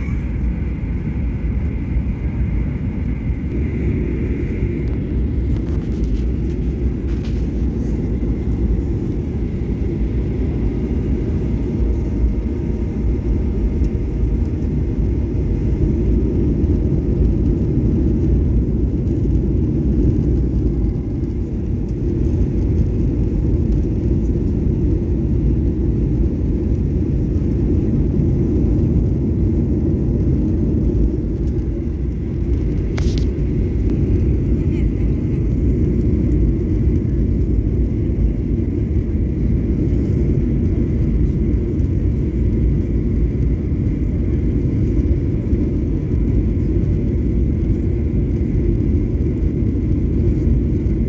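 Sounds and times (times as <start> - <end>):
faint high whine: 0.0 - 14.6
airliner cabin rumble: 0.0 - 51.0.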